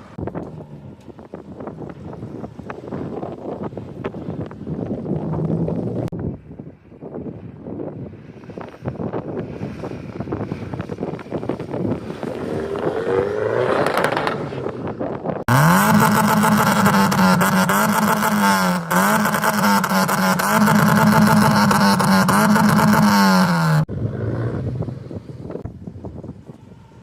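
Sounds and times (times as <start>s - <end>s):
car engine revving: 11.8s - 25.0s.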